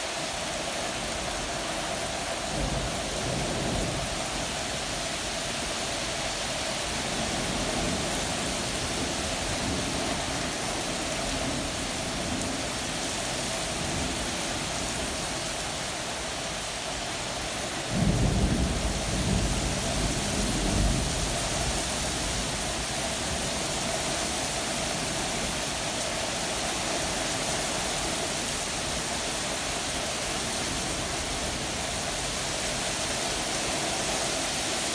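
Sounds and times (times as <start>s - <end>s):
steady rain falling: 0.0s - 34.9s
thunder rumbling: 17.9s - 22.6s.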